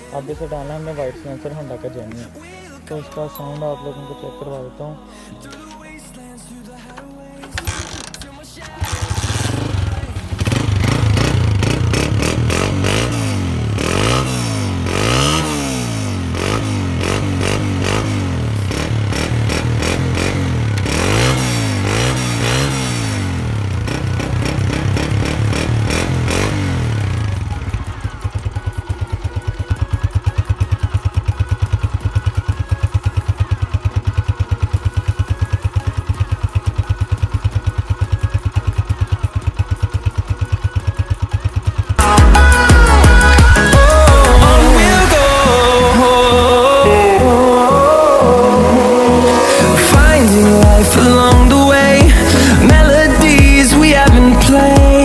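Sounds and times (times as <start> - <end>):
motorcycle engine revving: 7.4 - 55.0
music with steady beat: 38.1 - 55.0.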